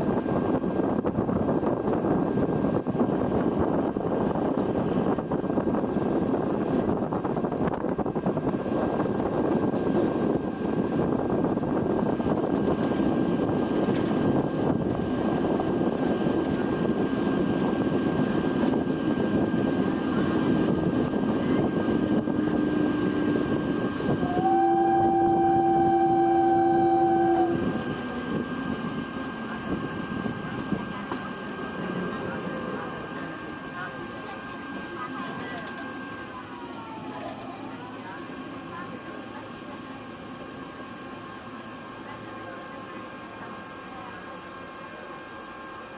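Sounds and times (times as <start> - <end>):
train wheels rumbling on track: 0.0 - 45.9
two-tone train horn: 22.2 - 28.6.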